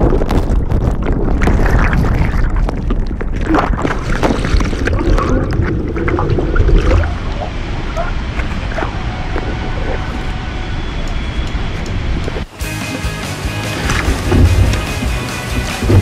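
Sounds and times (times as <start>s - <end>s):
wind buffeting microphone: 0.0s - 4.7s
waterfall roaring: 4.8s - 12.2s.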